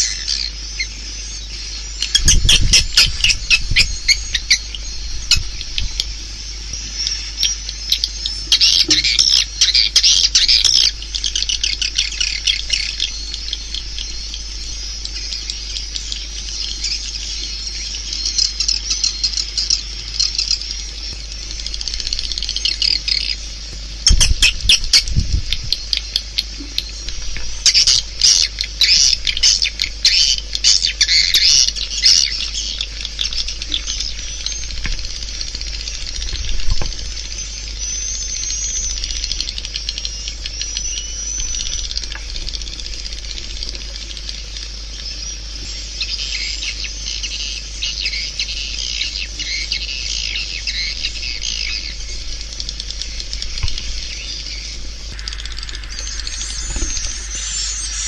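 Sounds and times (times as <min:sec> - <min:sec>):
swiftlet clicking twitters: 0:50.2 - 0:58.0.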